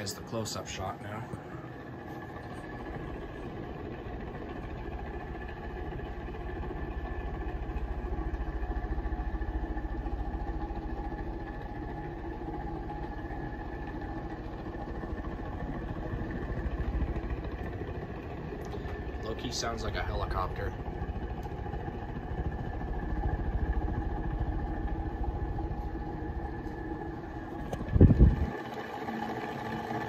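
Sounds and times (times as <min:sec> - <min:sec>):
ceiling fan humming: 0:00.0 - 0:30.0
loud fan bearings: 0:00.0 - 0:30.0
rapid low flutter: 0:01.3 - 0:29.0.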